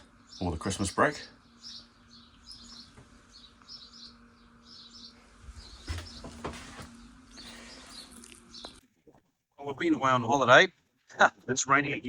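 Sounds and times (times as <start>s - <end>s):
small birds chirping: 0.0s - 8.9s
faint steady hum: 0.0s - 12.0s.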